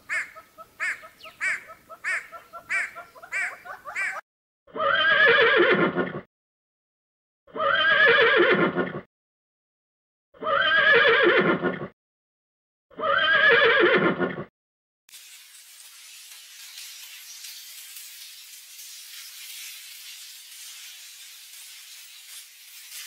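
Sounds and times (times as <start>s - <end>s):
horse whinnying: 4.7s - 6.3s, 7.5s - 9.0s, 10.4s - 11.9s, 13.0s - 14.4s.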